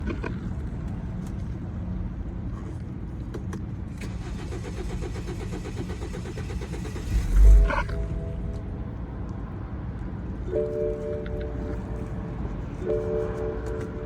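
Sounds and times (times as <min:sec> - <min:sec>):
car engine cranking: 0:04.0 - 0:08.8.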